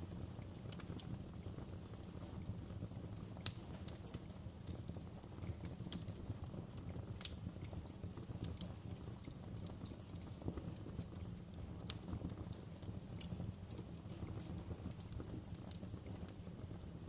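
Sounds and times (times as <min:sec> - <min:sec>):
sharp pops from fire: 0:00.0 - 0:17.0
wood fire crackling: 0:00.0 - 0:17.0.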